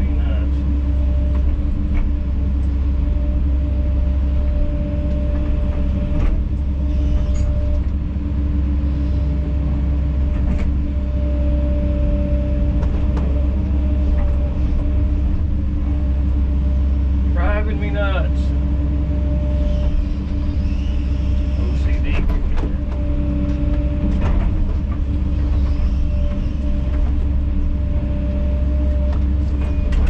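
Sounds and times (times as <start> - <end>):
excavator diesel engine running: 0.0 - 30.0
excavator clunks and knocks: 1.0 - 3.7, 4.5 - 8.2, 10.1 - 11.2, 12.6 - 16.3, 21.2 - 30.0.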